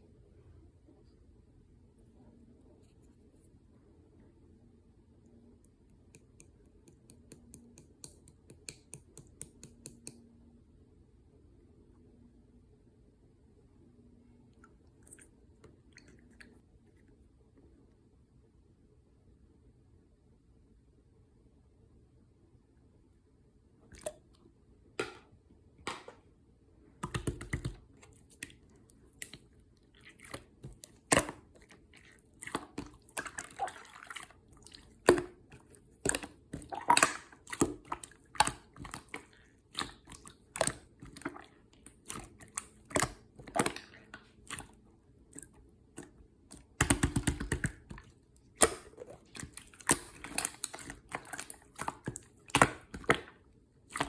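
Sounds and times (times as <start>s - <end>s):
slime squished by hand: 27.0s - 54.0s.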